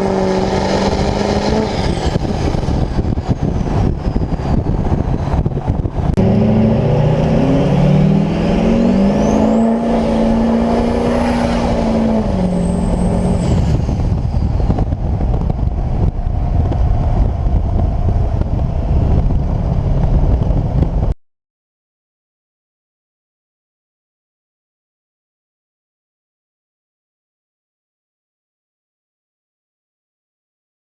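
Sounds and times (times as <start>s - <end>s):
diesel truck engine pulling hard: 0.0s - 21.1s
high turbo whistle: 6.2s - 14.9s.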